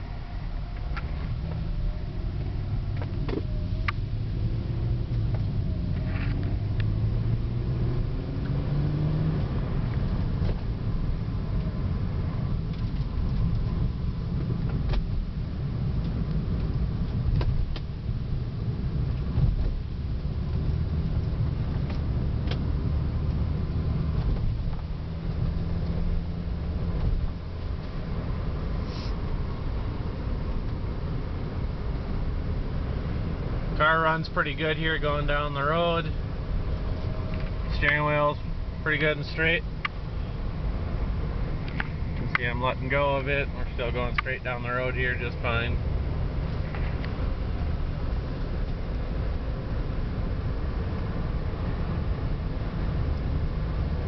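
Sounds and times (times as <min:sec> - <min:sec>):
car engine running: 0:00.0 - 0:54.0
road noise: 0:00.0 - 0:54.0.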